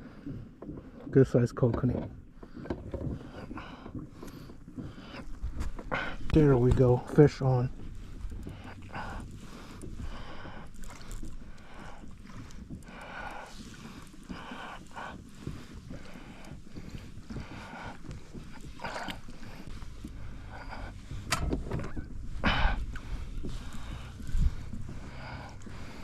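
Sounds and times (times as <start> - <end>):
water lapping against kayak: 0.0 - 26.0
wind on microphone: 11.6 - 26.0.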